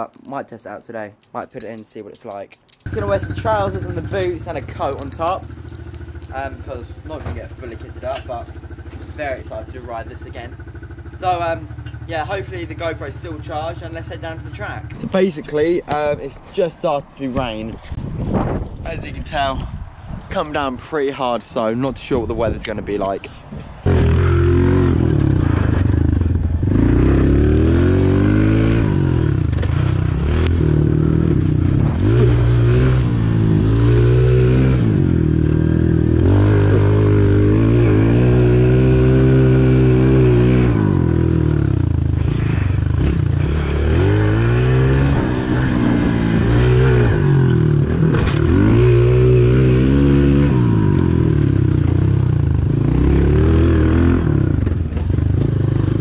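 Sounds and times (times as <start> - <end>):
motorbike engine revving: 2.9 - 15.0, 23.8 - 56.0.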